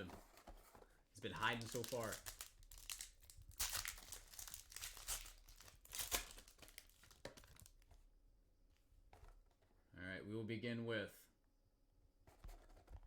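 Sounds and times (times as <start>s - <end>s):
plastic wrapping crinkling and tearing: 1.3s - 7.8s.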